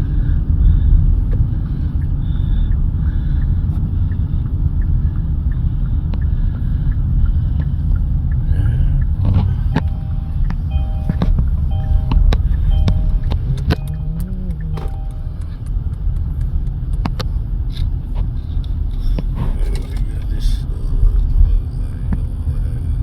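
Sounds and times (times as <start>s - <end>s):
road and engine rumble inside car: 0.0s - 23.0s
clicks: 9.0s - 17.9s
short beeping tones: 9.4s - 15.9s.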